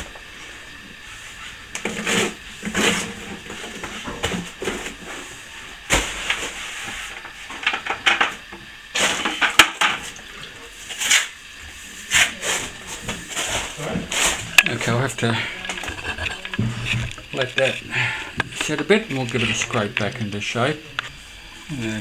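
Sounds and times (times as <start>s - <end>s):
trowel scraping plaster: 13.4s - 17.8s.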